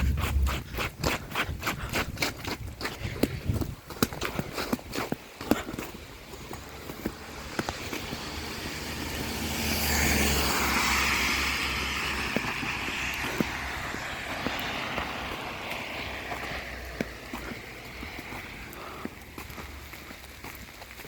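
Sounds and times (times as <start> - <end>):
faint footsteps clicking: 0.0 - 9.3, 11.4 - 21.0
car passing on wet road: 6.0 - 21.0.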